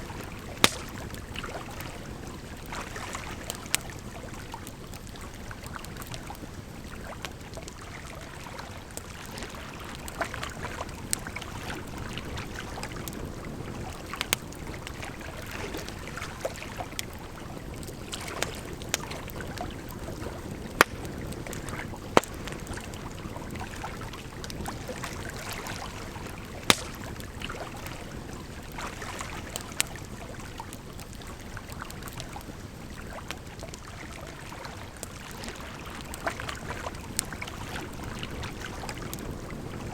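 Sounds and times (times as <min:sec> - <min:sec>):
campfire crackling and popping: 0:00.0 - 0:39.9
flowing water: 0:00.0 - 0:39.9.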